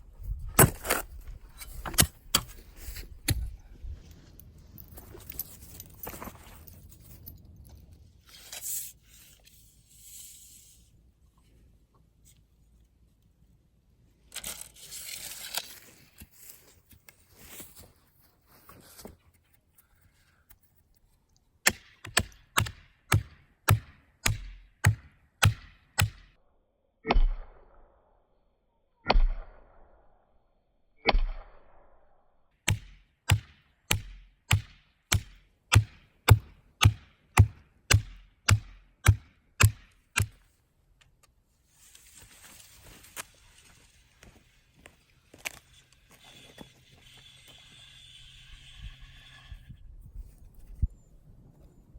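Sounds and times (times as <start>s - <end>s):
soil scraping: 0.0s - 11.0s, 14.2s - 19.6s, 41.6s - 51.0s
digging tool striking ground: 0.2s - 3.6s, 21.6s - 26.3s, 32.6s - 40.5s.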